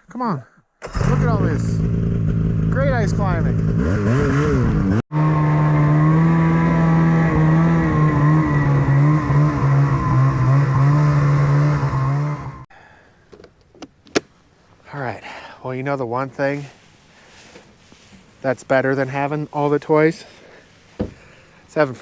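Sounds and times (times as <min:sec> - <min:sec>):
snowmobile engine running: 0:01.0 - 0:12.6.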